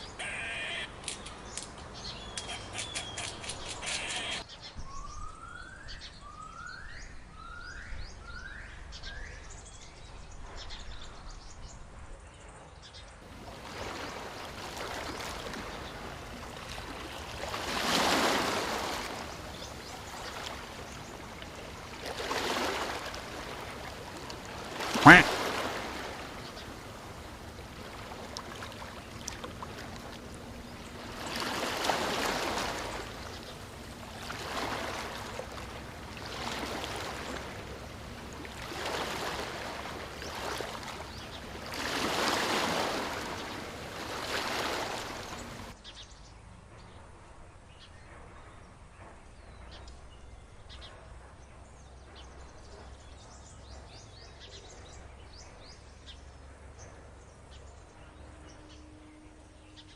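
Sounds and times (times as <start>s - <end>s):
rushing water: 13.2s - 45.8s.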